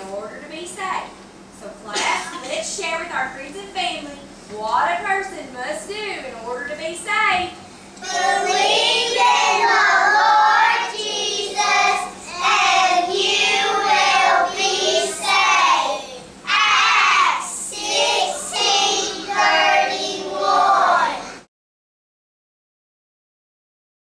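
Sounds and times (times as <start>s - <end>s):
children singing together: 8.0s - 21.5s.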